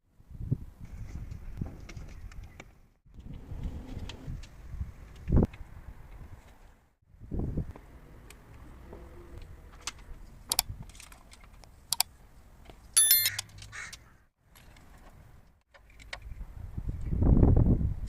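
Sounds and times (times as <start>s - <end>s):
sharp clicks and metallic taps: 13.0s - 13.4s
short high-pitched ringing: 13.0s - 13.4s.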